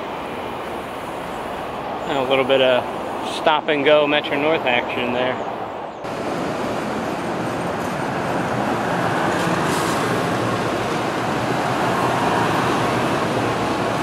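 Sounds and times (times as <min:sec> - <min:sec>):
train wheels rumbling on rails: 0:06.1 - 0:14.0.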